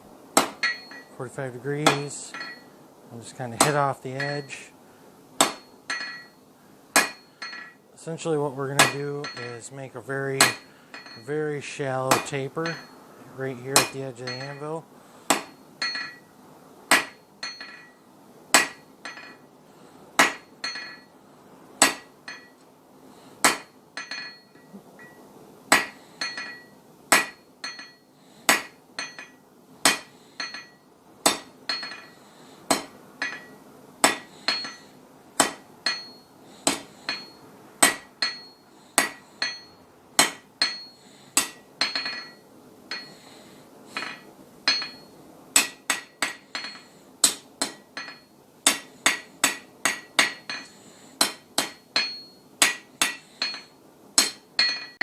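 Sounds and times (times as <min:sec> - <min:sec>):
hammer striking steel on anvil: 0:00.4 - 0:01.2, 0:01.8 - 0:02.7, 0:03.6 - 0:04.7, 0:05.4 - 0:07.8, 0:08.7 - 0:09.7, 0:10.4 - 0:11.5, 0:12.1 - 0:16.3, 0:16.9 - 0:19.5, 0:20.2 - 0:21.1, 0:21.8 - 0:22.6, 0:23.4 - 0:43.3, 0:44.0 - 0:55.0.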